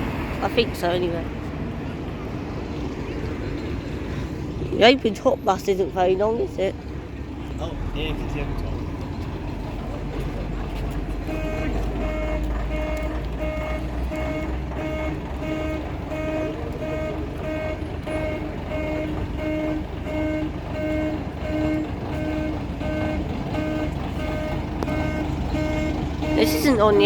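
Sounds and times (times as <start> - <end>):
diesel engine rumble: 0.0 - 27.0
reversing alarm beeping: 11.3 - 27.0.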